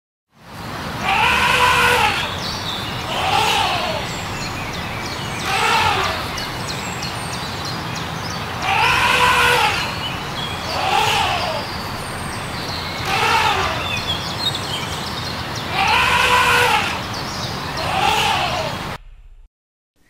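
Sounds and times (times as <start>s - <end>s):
low background noise: 0.4s - 19.0s
elephant trumpeting: 1.0s - 2.4s, 3.0s - 4.2s, 5.3s - 6.6s, 8.6s - 14.2s, 15.7s - 17.1s, 17.8s - 18.8s.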